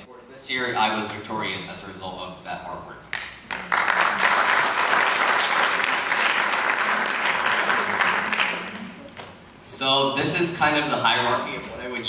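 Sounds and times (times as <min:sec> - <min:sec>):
audience applauding: 0:03.1 - 0:09.2.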